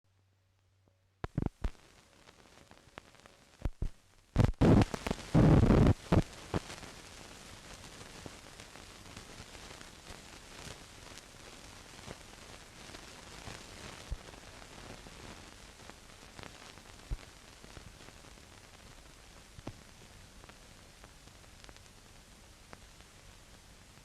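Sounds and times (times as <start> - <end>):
film soundtrack hiss: 0.1 - 24.0
sharp clicks and pops: 1.2 - 1.9, 3.6 - 6.7.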